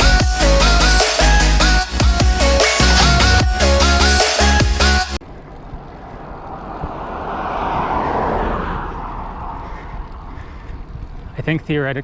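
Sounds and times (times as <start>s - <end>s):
electronic music: 0.0s - 5.2s
motor vehicle passing: 5.2s - 11.7s.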